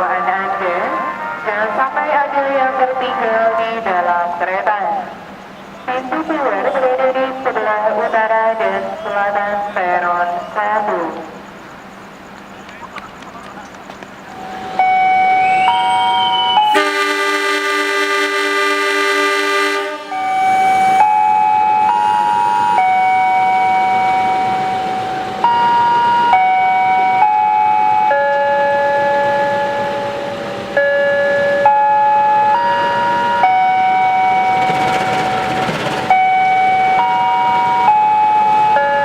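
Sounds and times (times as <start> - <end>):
sustained chord: 0.0 - 3.8, 14.3 - 18.7
electronic melody over public address: 0.0 - 11.4, 12.6 - 17.3, 20.1 - 39.0.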